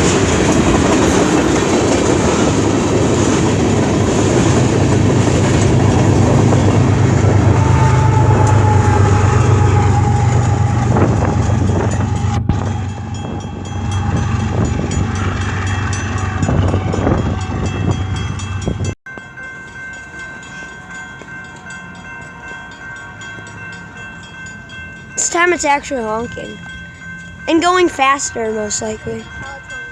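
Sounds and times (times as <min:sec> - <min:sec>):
wheels clattering over rail joints: 0:00.0 - 0:07.5
freight train rumbling past: 0:00.0 - 0:29.9.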